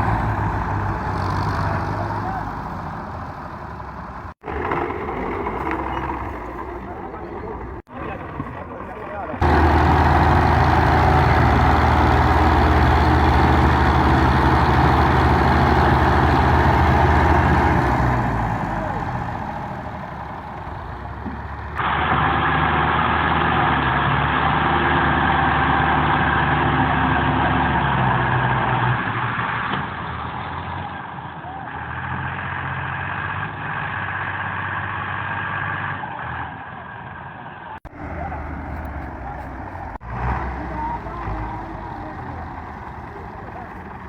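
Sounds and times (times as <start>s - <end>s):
tractor engine running: 0.0s - 23.2s, 37.8s - 44.0s.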